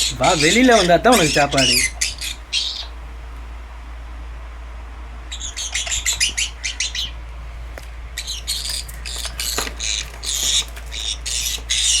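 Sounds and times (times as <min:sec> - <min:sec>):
parrot chirping and calling: 0:00.0 - 0:03.0, 0:05.3 - 0:07.2, 0:08.2 - 0:12.0
steady low hum: 0:00.0 - 0:12.0.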